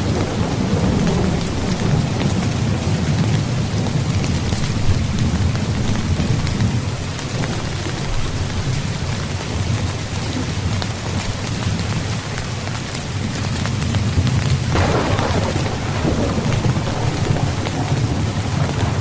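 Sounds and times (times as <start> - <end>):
low thunder rumble: 0.0 - 8.8, 13.9 - 19.0
rain drops hitting tent fabric: 0.0 - 19.0.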